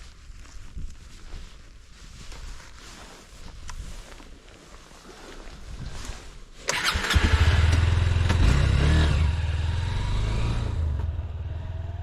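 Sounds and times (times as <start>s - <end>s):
motorcycle engine cranking: 6.7s - 8.6s
motorcycle engine running: 6.7s - 12.0s.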